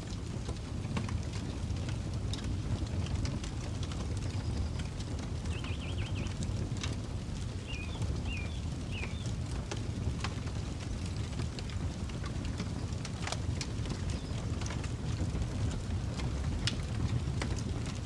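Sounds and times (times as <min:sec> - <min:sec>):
campfire crackling and popping: 0:00.0 - 0:18.0
wind rumble on microphone: 0:00.0 - 0:18.0
bird trill and chirps: 0:05.5 - 0:06.3, 0:07.7 - 0:09.3.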